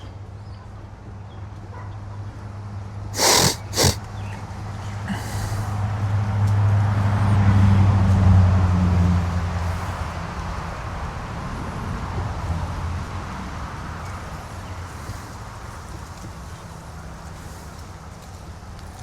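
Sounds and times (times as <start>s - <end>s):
short sharp hissing blasts: 3.2s - 4.0s, 5.1s - 5.8s.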